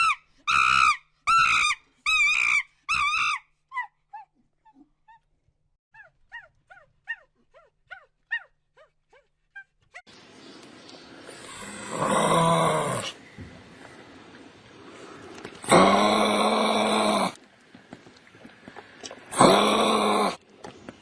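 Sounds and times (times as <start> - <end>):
animal high-pitched cries: 0.0 - 4.3.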